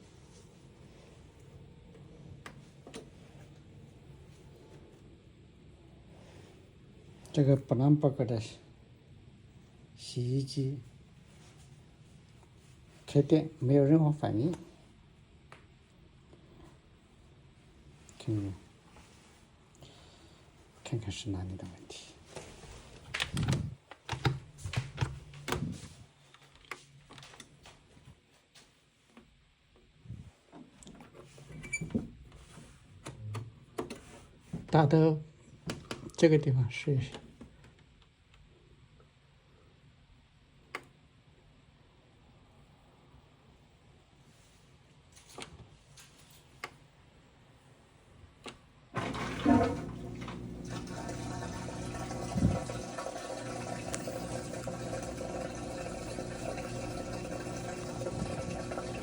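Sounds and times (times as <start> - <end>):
drain pump water rushing: 49.0 - 59.0.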